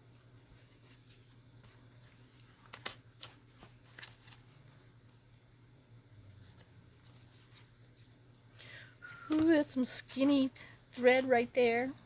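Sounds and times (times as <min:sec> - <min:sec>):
low steady hum: 0:00.0 - 0:12.0
paper clicks and rustles: 0:00.8 - 0:05.4.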